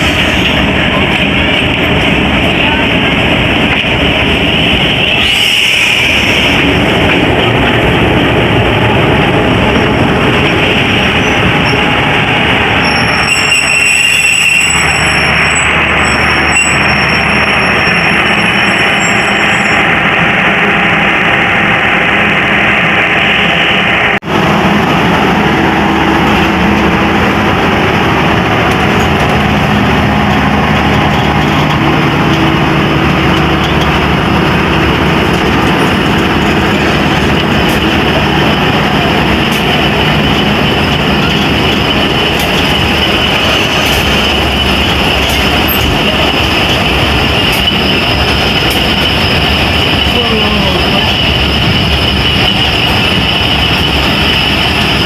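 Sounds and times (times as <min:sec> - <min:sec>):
train wheels rumbling on rails: 0:00.0 - 0:55.0
high-pitched squeal: 0:04.3 - 0:06.9, 0:09.8 - 0:24.2, 0:39.9 - 0:55.0.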